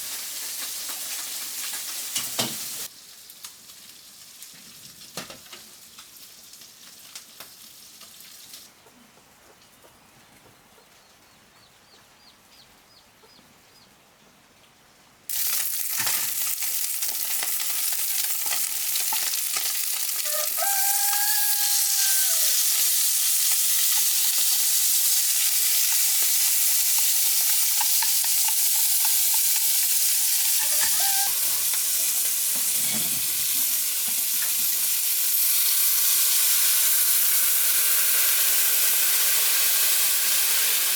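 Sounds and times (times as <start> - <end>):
food frying in hot oil: 0.0 - 8.7, 15.3 - 40.9
rooster crowing: 20.2 - 22.7, 30.6 - 31.8.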